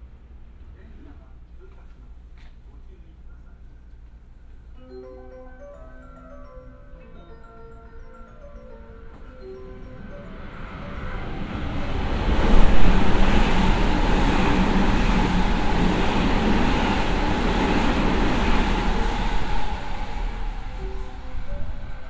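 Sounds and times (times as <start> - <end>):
train wheels rumbling on rail: 10.7 - 22.0.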